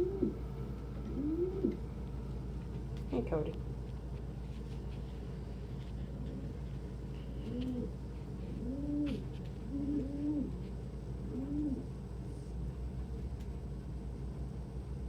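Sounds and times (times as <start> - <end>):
pigeon cooing: 0.0 - 1.9, 6.1 - 12.0.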